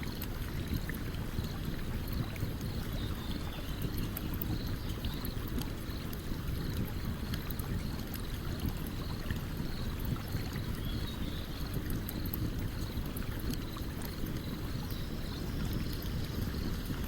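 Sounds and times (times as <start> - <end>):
stream water running: 0.0 - 17.0.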